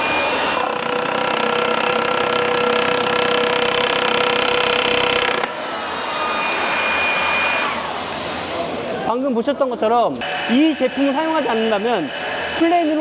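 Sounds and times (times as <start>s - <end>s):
hammer drill drilling: 0.0s - 7.8s.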